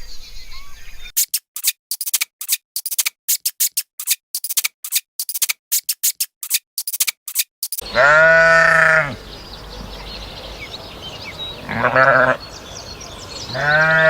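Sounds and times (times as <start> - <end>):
animal clicking chirps: 1.2 - 8.0.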